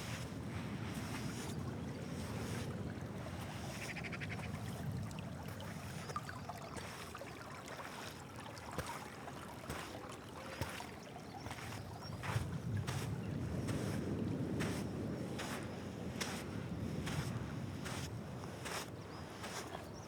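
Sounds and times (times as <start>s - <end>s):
rush of wind: 12.2s - 19.4s.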